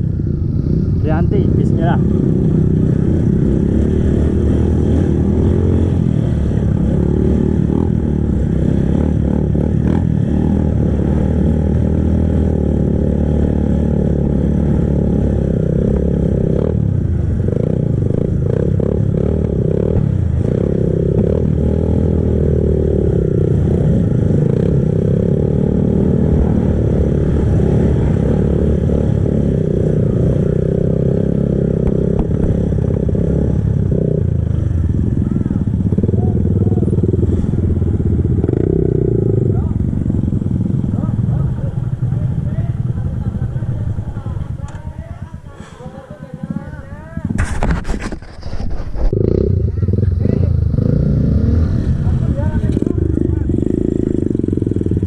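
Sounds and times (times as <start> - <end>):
motorcycle engine running under load: 29.3 - 48.3, 49.0 - 55.0.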